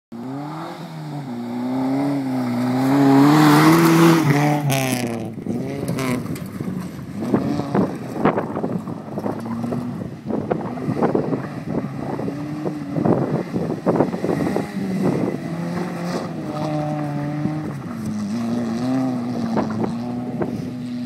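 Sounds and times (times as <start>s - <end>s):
car engine revving: 0.2s - 21.0s
wind on microphone: 5.3s - 21.0s.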